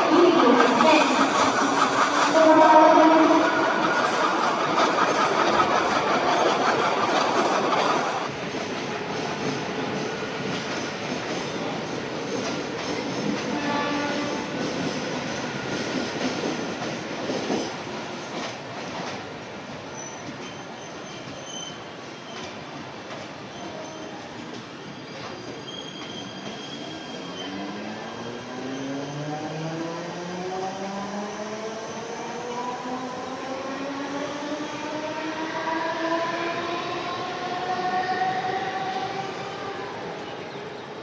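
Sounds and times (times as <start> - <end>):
diesel locomotive passing: 0.0 - 19.9, 26.3 - 41.0
train coaches clattering on rails: 0.0 - 30.6.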